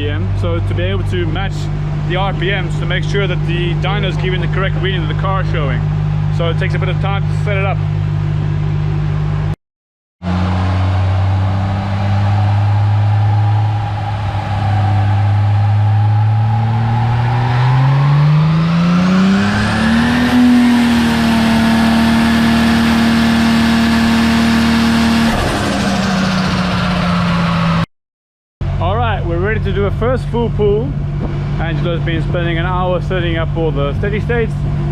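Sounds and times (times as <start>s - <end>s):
car engine revving on dyno: 10.2s - 27.9s.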